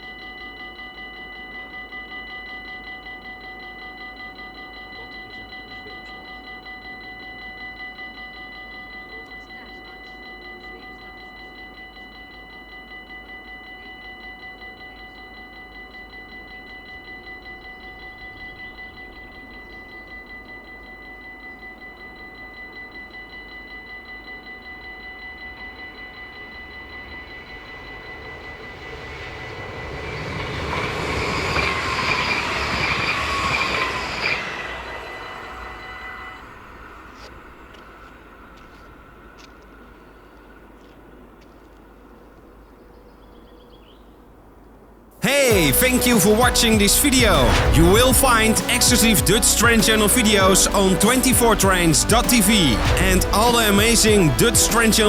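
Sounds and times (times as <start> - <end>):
level crossing bell ringing: 0.0 - 37.2, 45.2 - 55.0
train wheel squeal: 2.8 - 42.1
train rumbling past: 24.8 - 42.7, 45.2 - 55.0.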